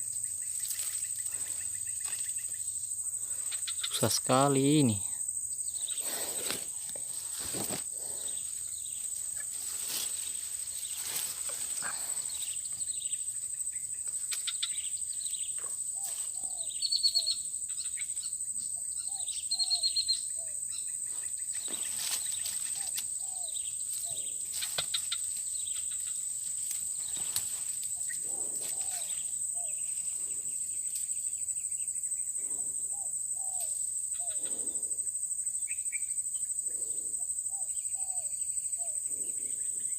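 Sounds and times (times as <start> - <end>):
crickets chirping: 0.0 - 39.9
bird chirps: 3.4 - 5.0, 11.8 - 26.3.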